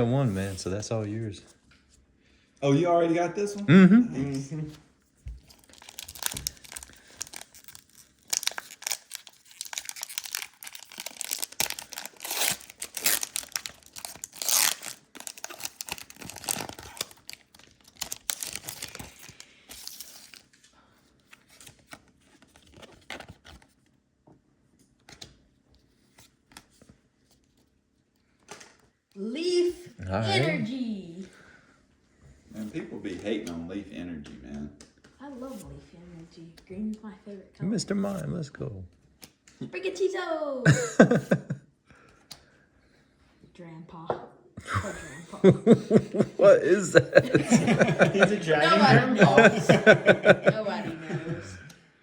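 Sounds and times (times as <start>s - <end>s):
foil wrappers tearing and crinkling: 5.5s - 20.6s.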